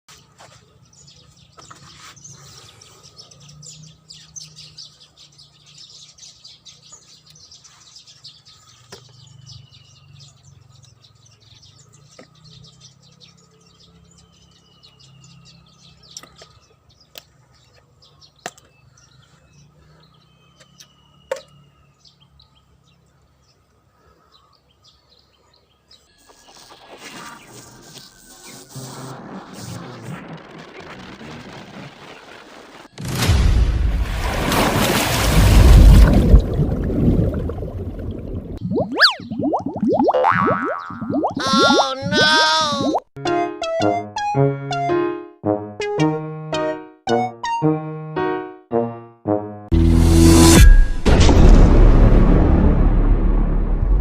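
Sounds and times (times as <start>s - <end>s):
small birds chirping: 0.1s - 28.7s, 38.6s - 43.1s
short falling whistles: 38.8s - 39.6s.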